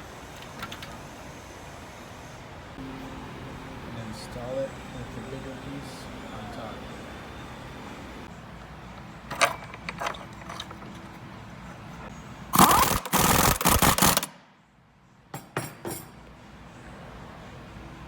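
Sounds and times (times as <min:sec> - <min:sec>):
metallic clicks and clanks: 0:09.3 - 0:11.0.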